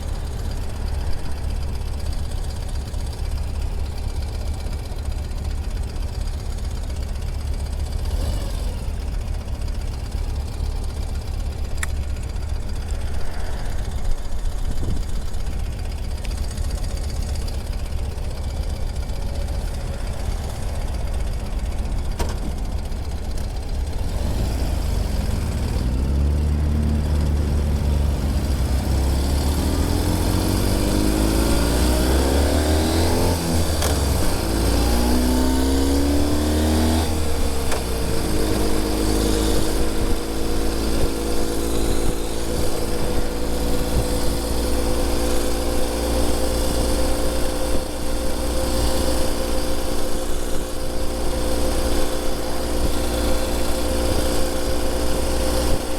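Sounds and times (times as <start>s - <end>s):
motorcycle engine shifting gears: 0.0s - 55.9s.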